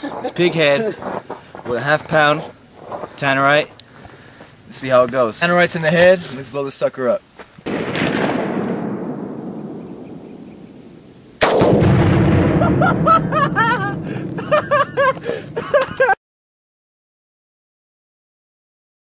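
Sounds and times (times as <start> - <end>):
loud explosion blast: 7.7 - 15.6
explosion echo rolling: 7.7 - 15.7.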